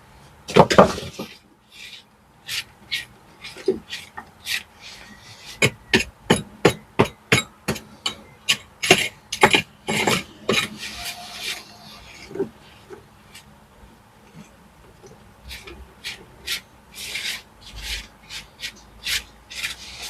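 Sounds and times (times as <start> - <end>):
gritty scraping of breaking material: 15.5 - 20.0.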